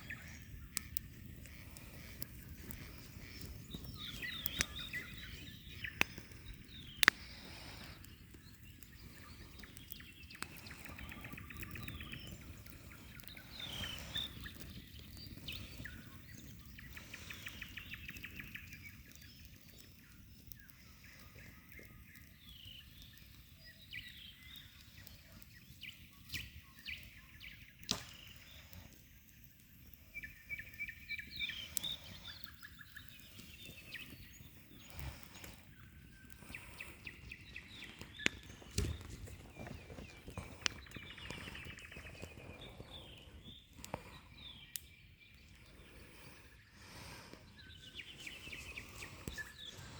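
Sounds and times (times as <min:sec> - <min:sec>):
faint outdoor background noise: 0:00.0 - 0:49.9
songbirds singing and trilling: 0:00.0 - 0:49.9
sharp clicks: 0:06.0 - 0:07.3.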